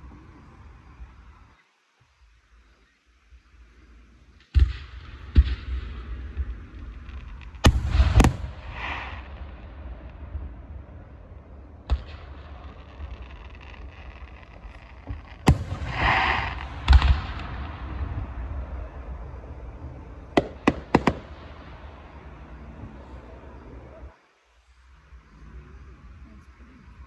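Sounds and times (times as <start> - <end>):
low steady rumble: 3.3 - 27.0
fireworks bangs: 4.4 - 24.2
sharp cracks: 11.8 - 24.0.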